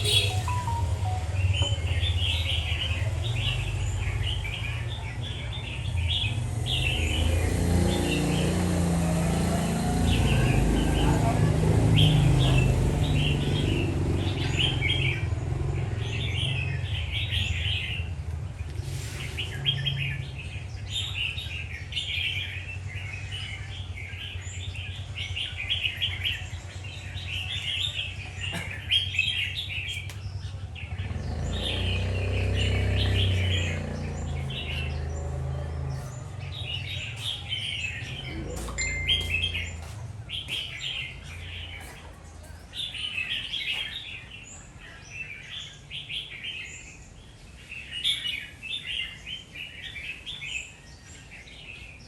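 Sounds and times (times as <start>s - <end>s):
bird singing chirpy phrases: 0.0s - 52.0s.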